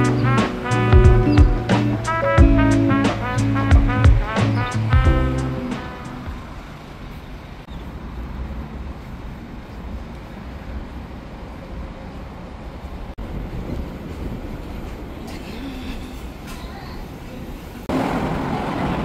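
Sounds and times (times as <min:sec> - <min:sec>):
background music: 0:00.0 - 0:06.5
low rumble of vehicle noise: 0:00.0 - 0:19.0.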